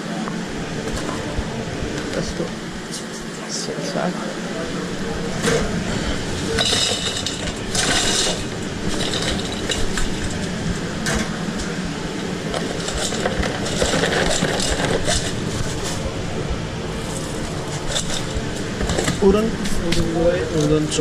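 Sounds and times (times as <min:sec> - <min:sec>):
steady kitchen hum: 0:00.0 - 0:21.0
clinks and clatter: 0:06.5 - 0:11.7, 0:12.5 - 0:16.0, 0:17.2 - 0:19.2.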